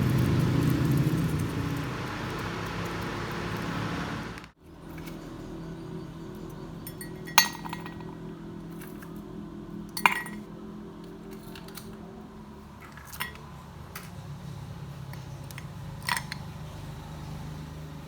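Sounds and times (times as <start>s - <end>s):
glass and metal kitchenware clinking: 6.8s - 8.2s, 10.0s - 10.5s.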